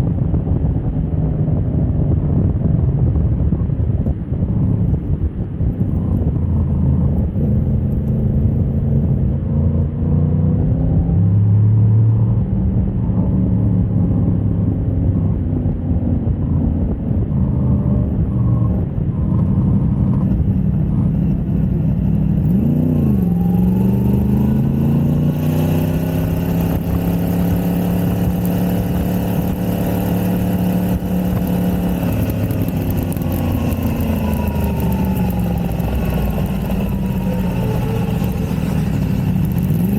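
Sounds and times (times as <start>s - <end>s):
wind rush: 0.0s - 39.9s
motorcycle engine revving: 13.1s - 39.9s.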